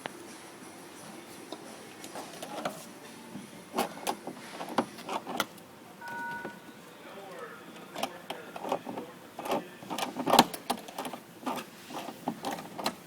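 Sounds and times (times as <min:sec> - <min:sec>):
refrigerator electronic beep: 0:06.0 - 0:06.8.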